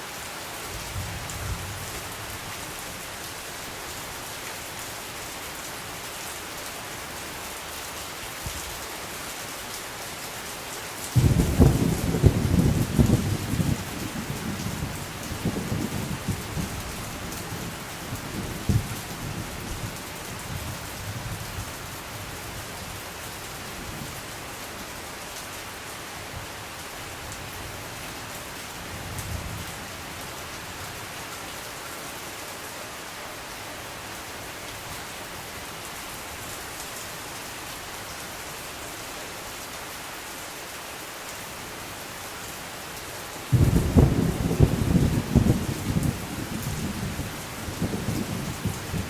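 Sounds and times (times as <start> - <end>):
steady rain hissing: 0.0 - 49.0
thunder rolling: 11.2 - 14.0, 43.5 - 49.0.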